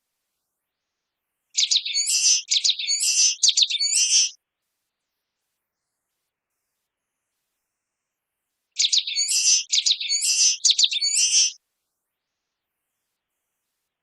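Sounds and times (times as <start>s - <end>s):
small bird singing: 1.5s - 4.4s, 8.8s - 11.6s.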